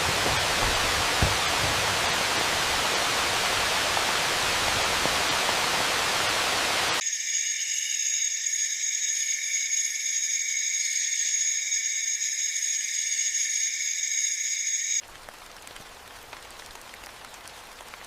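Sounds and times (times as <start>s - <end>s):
night insects chorus: 7.0s - 15.0s.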